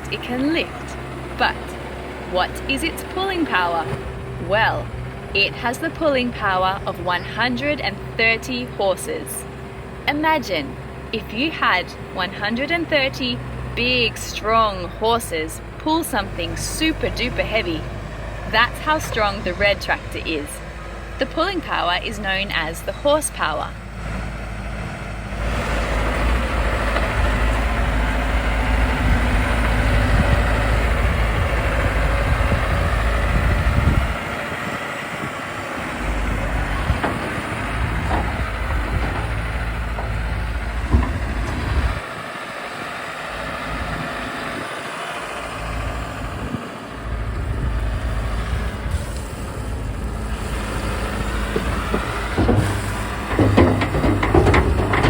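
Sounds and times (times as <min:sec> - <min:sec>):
loader digging gravel: 0:00.0 - 0:55.0
tractor diesel engine under load: 0:00.0 - 0:55.0
metal clanks: 0:36.9 - 0:42.0, 0:51.5 - 0:55.0.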